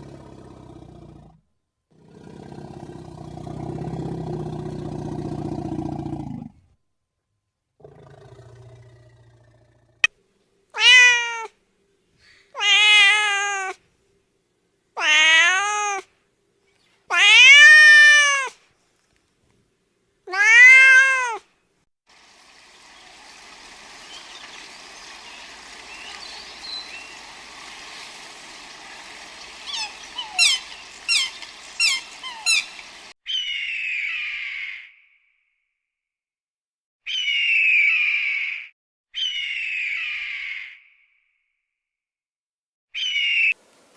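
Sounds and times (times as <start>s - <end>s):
cat meowing: 10.8s - 11.5s, 12.6s - 13.8s, 15.0s - 16.1s, 17.1s - 18.6s, 20.3s - 21.4s, 29.6s - 32.6s
steady hiss: 22.1s - 33.1s.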